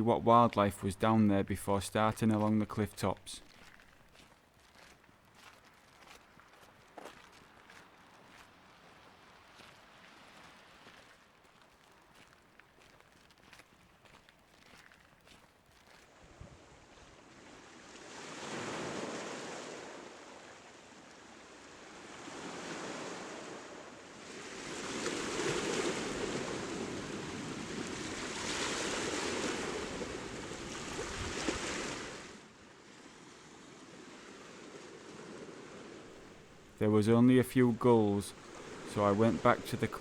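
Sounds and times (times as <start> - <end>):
sea waves breaking on beach: 16.1 - 40.0.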